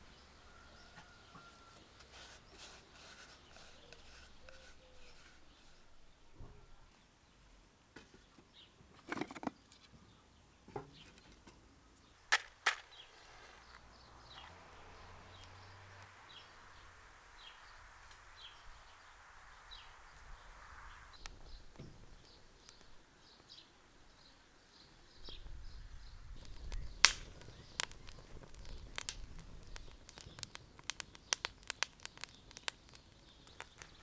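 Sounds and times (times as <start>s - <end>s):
small bird chirping: 0.0s - 7.0s, 9.5s - 34.0s
soft hiss: 0.0s - 7.7s, 11.9s - 34.0s.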